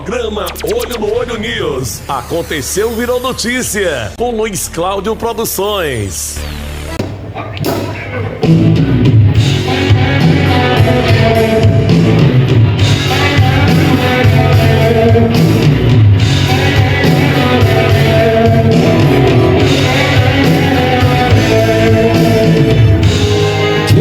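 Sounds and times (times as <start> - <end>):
bass line: 0.0 - 5.0, 5.6 - 24.0
guitar: 6.7 - 24.0
rock band music: 7.0 - 24.0.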